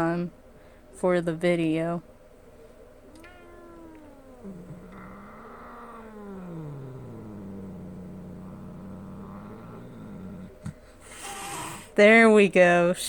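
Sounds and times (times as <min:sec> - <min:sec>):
cat growling: 0:03.2 - 0:12.0
cat hissing: 0:03.2 - 0:12.0.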